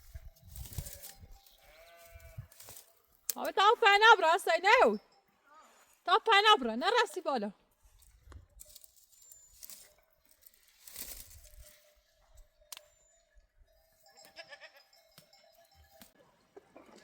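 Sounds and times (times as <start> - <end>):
goat bleating: 1.6 - 2.6, 14.2 - 15.0.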